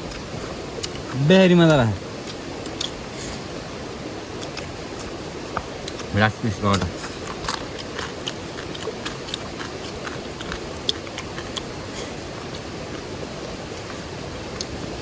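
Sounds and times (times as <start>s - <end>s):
background hiss: 0.0s - 15.0s
chewing crab shell cracks: 7.0s - 11.7s.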